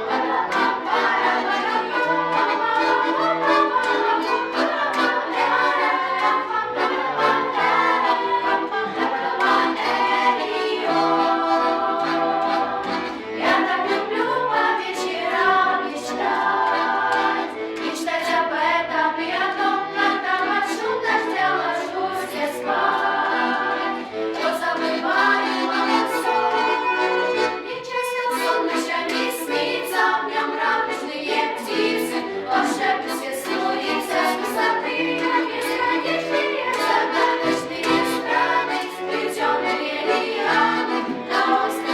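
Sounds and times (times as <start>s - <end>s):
accompaniment with steady beat: 31.9s - 41.9s.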